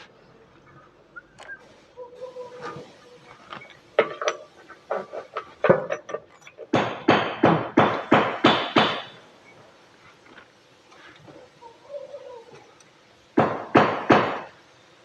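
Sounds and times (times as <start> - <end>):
sharp knocks like hammer blows: 6.7 - 9.2, 13.4 - 14.5.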